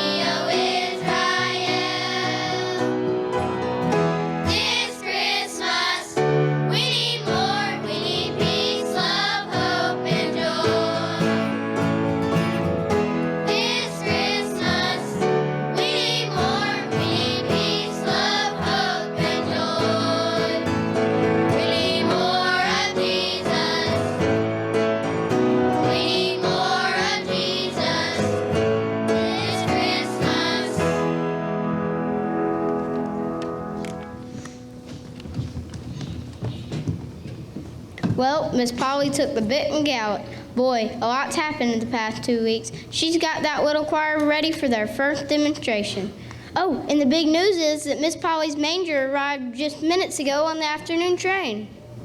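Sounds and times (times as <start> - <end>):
choir singing: 0.0 - 12.0, 13.3 - 32.8
instrumental accompaniment: 0.0 - 37.9.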